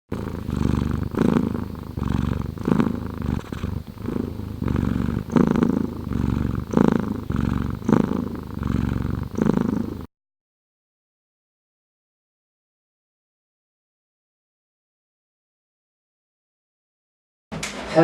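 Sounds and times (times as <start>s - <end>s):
cat purring: 0.0s - 10.1s.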